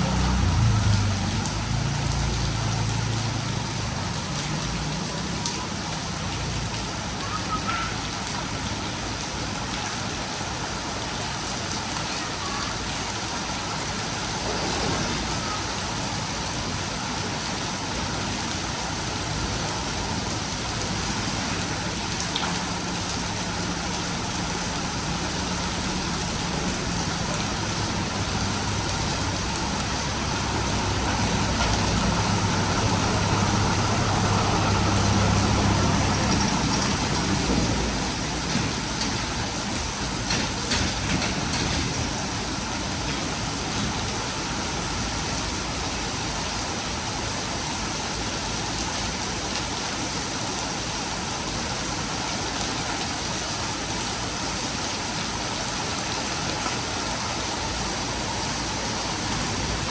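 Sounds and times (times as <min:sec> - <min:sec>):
low engine hum: 0:00.0 - 0:05.4, 0:21.2 - 0:39.8
heavy rain pouring: 0:00.0 - 0:59.9.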